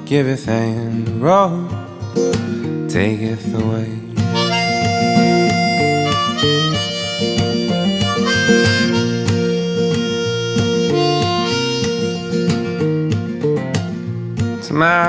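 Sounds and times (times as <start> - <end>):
acoustic guitar: 0.0 - 15.0
harmonica solo: 4.3 - 13.3.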